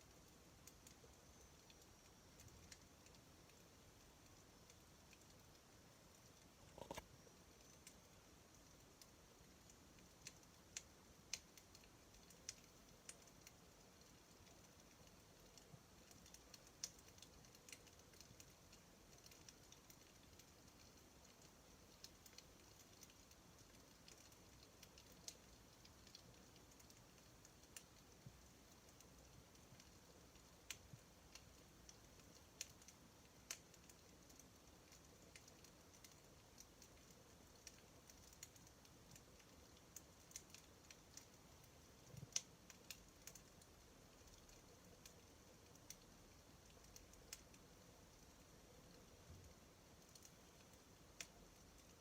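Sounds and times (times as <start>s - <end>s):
faint steady hiss: 0.0s - 52.0s
campfire snaps and pops: 0.1s - 52.0s.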